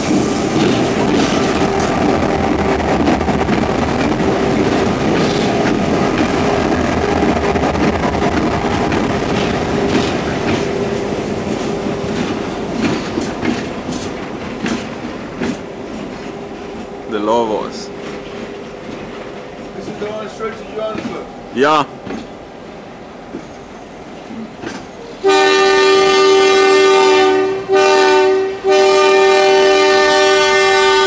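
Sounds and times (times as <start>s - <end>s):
train carriages clattering: 0.0s - 25.4s
diesel locomotive rumbling past: 0.0s - 31.0s.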